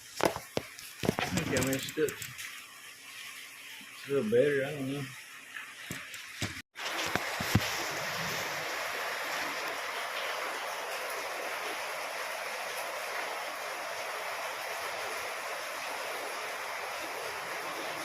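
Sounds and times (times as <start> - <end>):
heavy rain: 6.8 - 18.0.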